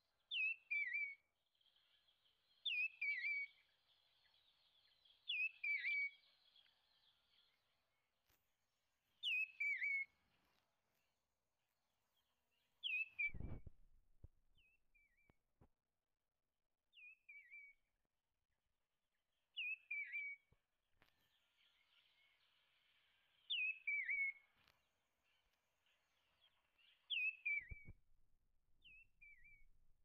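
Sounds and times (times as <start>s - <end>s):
songbird whistle and trill: 0.2s - 7.6s, 9.2s - 10.2s, 12.8s - 13.7s, 16.9s - 17.8s, 19.5s - 20.6s, 21.3s - 28.0s, 28.8s - 29.7s.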